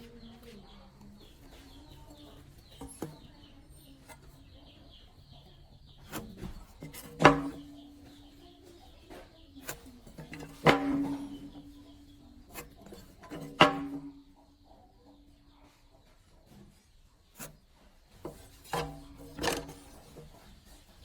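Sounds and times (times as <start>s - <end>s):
small bird chirping: 0.0s - 21.0s.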